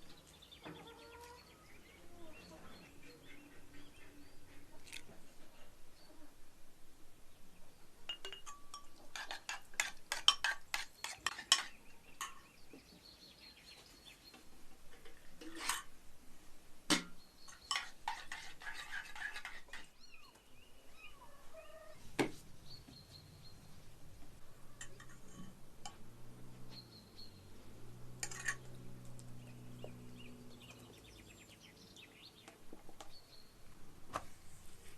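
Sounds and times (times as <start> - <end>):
dishes and utensils clinking: 8.1 - 12.5, 15.0 - 15.9, 16.9 - 19.9, 24.8 - 26.1, 28.2 - 28.8
faint bird chirps: 20.0 - 22.0.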